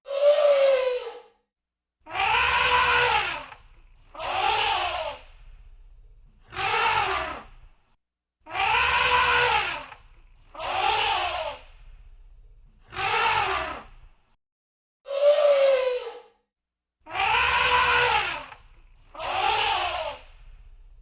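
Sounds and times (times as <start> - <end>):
elephant trumpeting: 2.1 - 5.2, 8.5 - 10.0, 17.1 - 18.6, 19.2 - 20.2.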